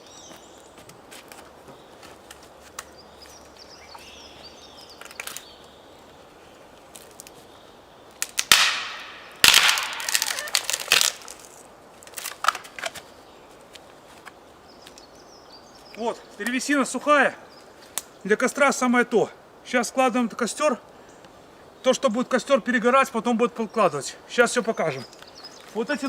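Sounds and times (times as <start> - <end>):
dry wood cracking and splintering: 5.0 - 5.5, 8.2 - 13.0.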